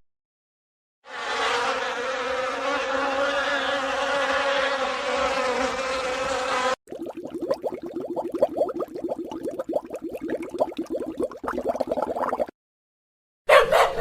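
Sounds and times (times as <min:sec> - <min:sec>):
bee buzzing: 0:01.6 - 0:06.8.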